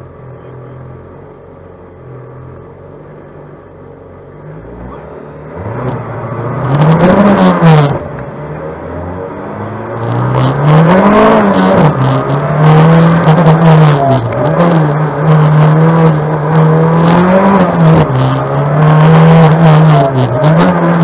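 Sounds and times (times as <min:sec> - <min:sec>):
car engine revving: 0:04.2 - 0:21.0.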